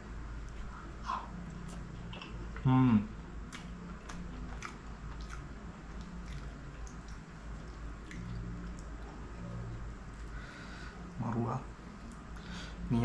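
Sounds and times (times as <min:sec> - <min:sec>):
chewing food: 0:03.4 - 0:10.5.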